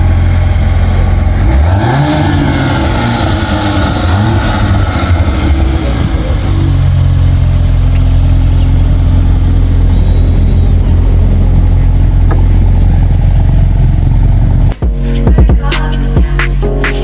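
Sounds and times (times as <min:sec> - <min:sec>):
car engine idling: 0:00.0 - 0:14.8.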